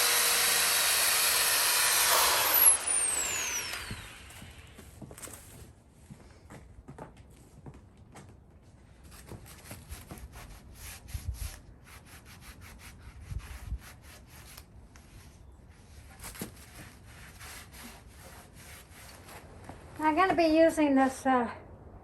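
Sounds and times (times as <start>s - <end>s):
sanding on rusty metal: 10.1s - 15.2s, 16.6s - 19.4s.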